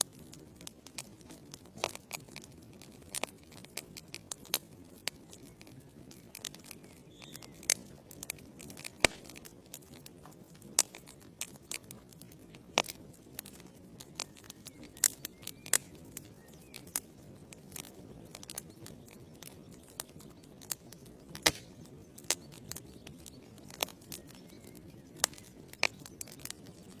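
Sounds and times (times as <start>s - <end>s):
logs crackling and popping: 0.0s - 27.0s
fire hissing: 21.5s - 21.8s.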